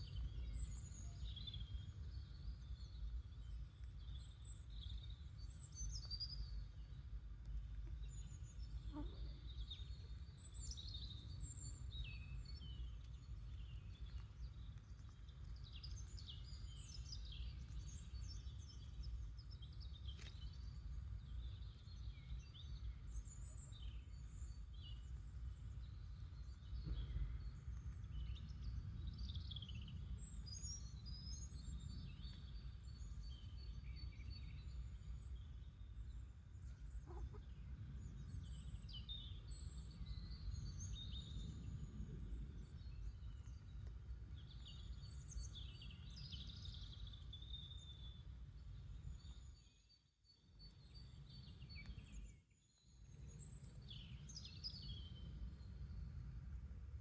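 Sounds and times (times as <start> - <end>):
low background rumble: 0.0 - 49.4
small birds chirping: 0.0 - 56.0.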